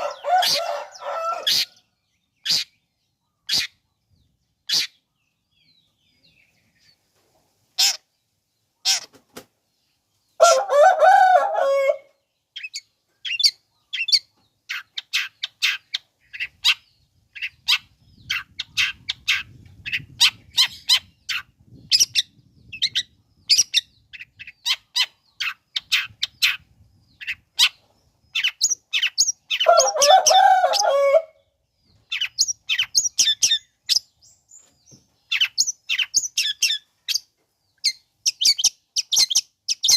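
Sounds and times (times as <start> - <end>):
harsh grating bird call: 0.0 - 1.8, 2.4 - 2.8, 4.6 - 5.0, 7.8 - 8.1, 28.4 - 31.4.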